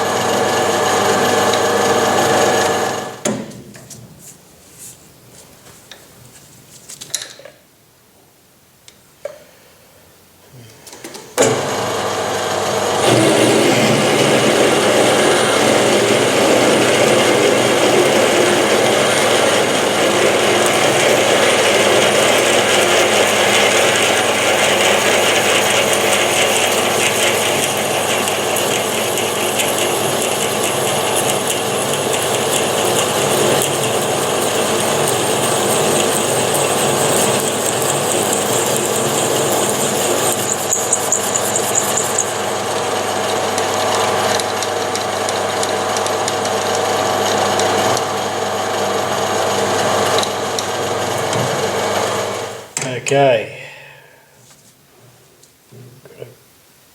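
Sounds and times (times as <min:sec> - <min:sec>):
metal lathe cutting: 0:00.0 - 0:03.2, 0:11.5 - 0:52.6.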